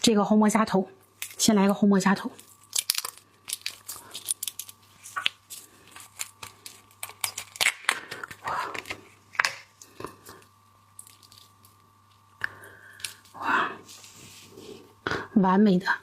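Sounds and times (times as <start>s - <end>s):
shrimp shell cracking: 2.4s - 8.5s, 10.9s - 13.2s
wet tearing sounds: 2.4s - 8.9s.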